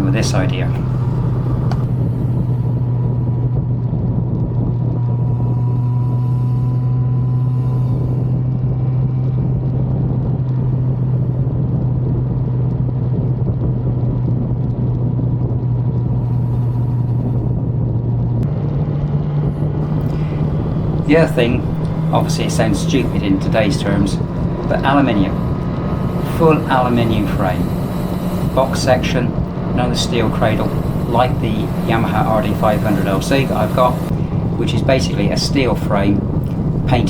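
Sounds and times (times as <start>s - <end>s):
motorcycle engine cruising: 0.0s - 2.9s, 19.8s - 37.0s.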